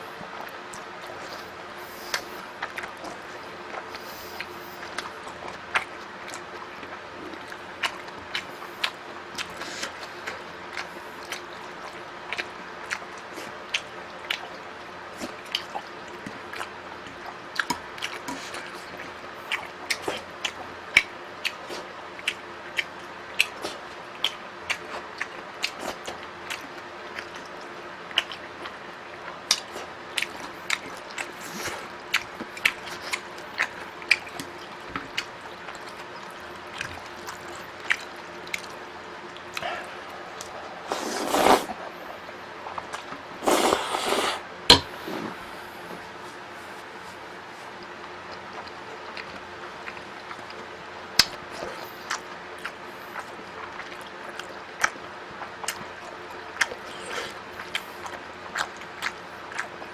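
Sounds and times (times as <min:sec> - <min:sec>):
faint steady hum: 0:00.0 - 0:59.9
wet chewing and mouth smacking: 0:00.4 - 0:45.0, 0:47.7 - 0:59.9.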